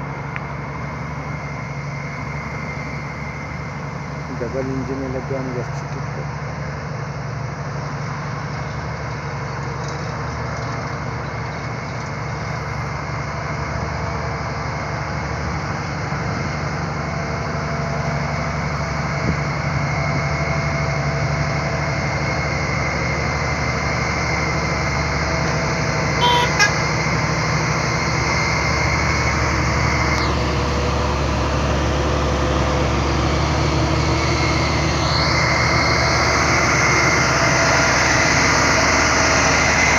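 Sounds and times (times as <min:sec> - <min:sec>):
truck diesel engine pulling uphill: 0:00.0 - 0:39.9
short horn toot: 0:26.2 - 0:26.9.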